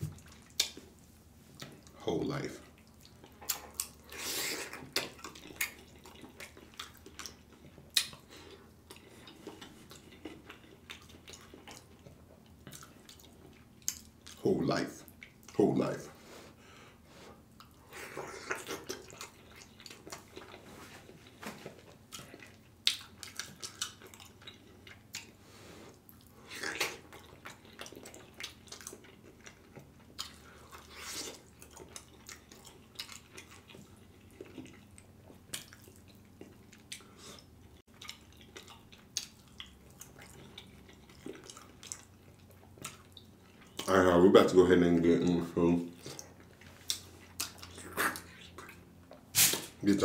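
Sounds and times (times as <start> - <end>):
wet chewing and lip smacking: 0.1 - 2.0, 2.6 - 14.4, 15.0 - 15.6, 17.4 - 44.0, 45.9 - 49.8.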